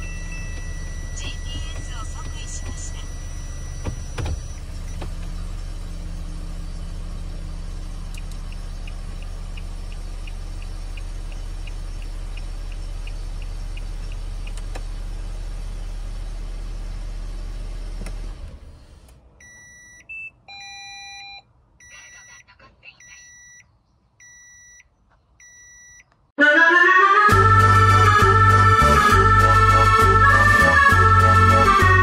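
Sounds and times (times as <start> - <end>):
electronic beeps: 0.0 - 5.0, 19.4 - 26.1
car engine idling: 0.0 - 19.5.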